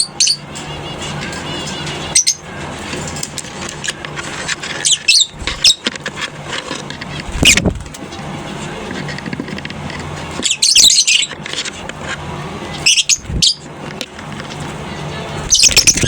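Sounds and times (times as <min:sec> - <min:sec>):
lovebirds chirping: 0:00.0 - 0:05.9, 0:10.0 - 0:11.5, 0:12.6 - 0:13.8, 0:14.6 - 0:16.0
steady low hum: 0:00.4 - 0:16.0.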